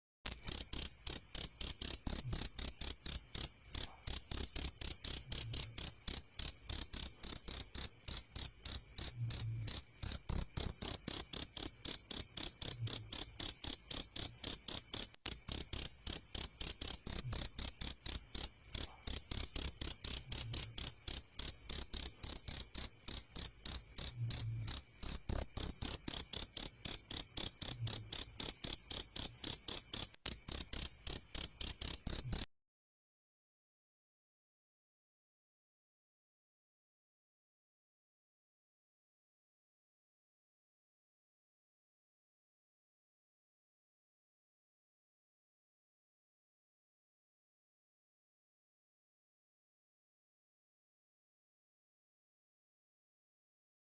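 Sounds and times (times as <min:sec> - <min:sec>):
cricket chirping: 0:00.3 - 0:32.5.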